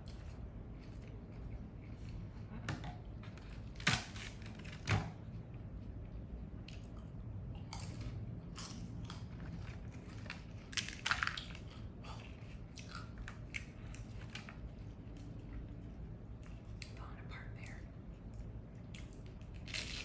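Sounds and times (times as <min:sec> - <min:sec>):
crunching crisp tortilla chips: 0:03.4 - 0:16.9, 0:18.8 - 0:20.0.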